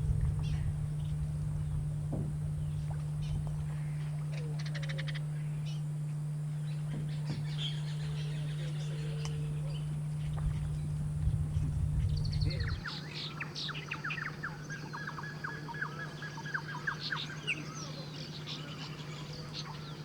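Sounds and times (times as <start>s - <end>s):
low hum and rumble: 0.0s - 16.0s.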